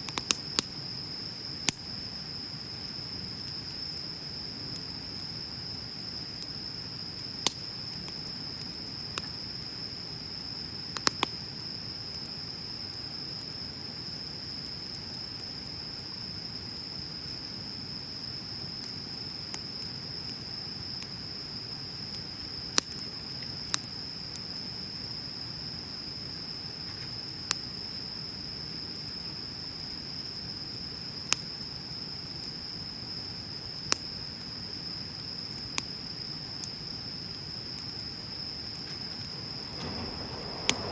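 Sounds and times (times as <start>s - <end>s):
insects trilling: 0.0s - 40.9s
bonfire crackling and popping: 0.1s - 25.4s, 33.8s - 40.9s.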